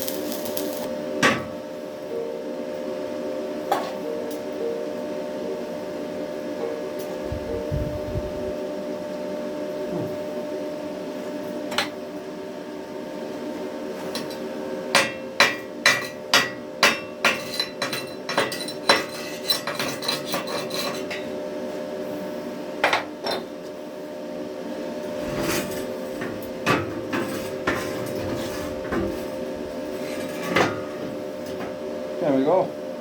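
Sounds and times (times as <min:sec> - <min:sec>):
chipping hammer tapping steel: 0:00.0 - 0:00.9.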